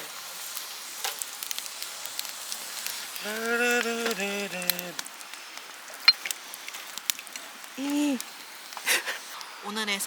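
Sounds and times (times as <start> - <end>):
wood fire crackling and popping: 0.0 - 10.0
person's voice: 3.2 - 5.0.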